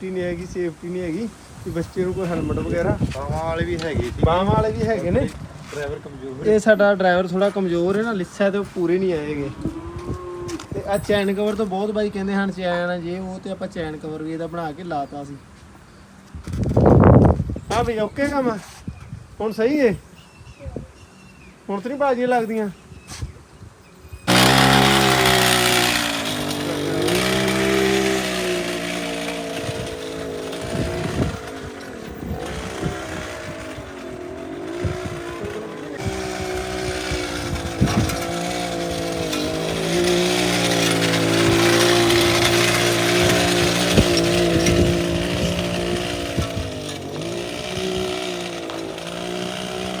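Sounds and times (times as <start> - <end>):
mini bike engine revving: 0.1 - 14.0, 24.3 - 50.0.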